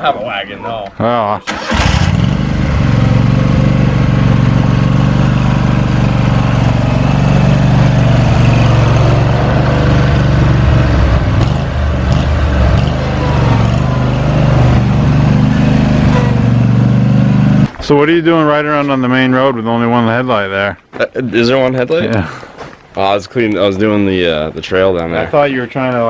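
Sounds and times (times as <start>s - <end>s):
riding lawn mower engine running: 1.5s - 17.8s.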